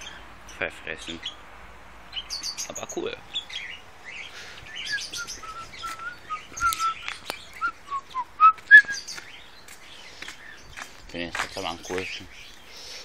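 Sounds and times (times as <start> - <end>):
birds chirping: 0.0 - 13.0
short whistled bird notes: 4.8 - 9.2.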